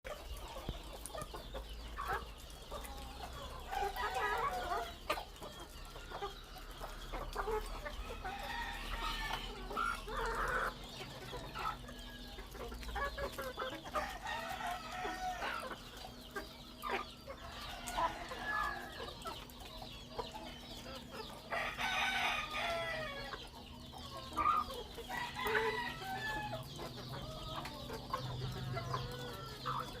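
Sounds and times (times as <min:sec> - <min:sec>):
chickens clucking: 0:00.0 - 0:30.0
roosters crowing: 0:03.5 - 0:05.2, 0:05.8 - 0:10.9, 0:13.8 - 0:16.2, 0:16.8 - 0:19.2, 0:21.3 - 0:30.0.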